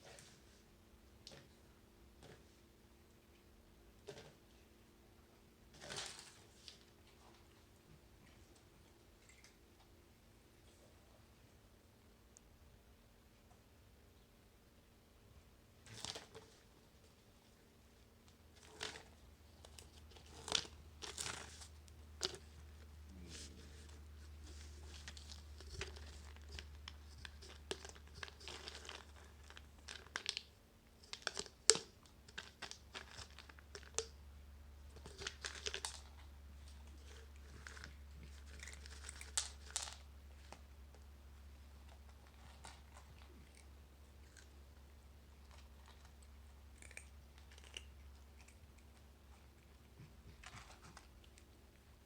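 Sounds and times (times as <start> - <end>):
plastic toy crinkling and rustling: 5.8 - 7.2, 15.8 - 16.7, 18.3 - 34.2, 34.9 - 41.0, 41.6 - 44.6.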